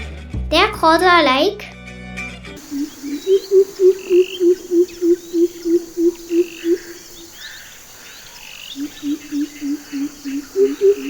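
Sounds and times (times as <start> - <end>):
bird hooting deeply: 2.6 - 11.0
faint birds chirping: 2.6 - 11.0.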